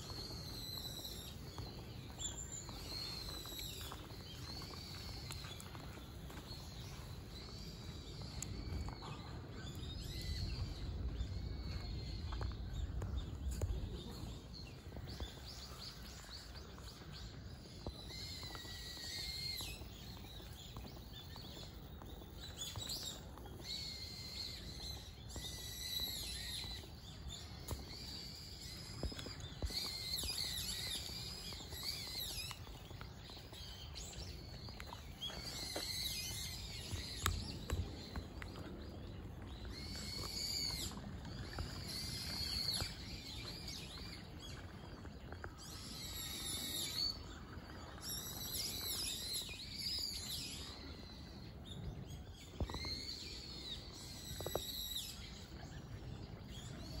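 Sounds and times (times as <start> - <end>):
steady low rumble: 0.0 - 18.1
wild birds chirping: 0.0 - 57.0.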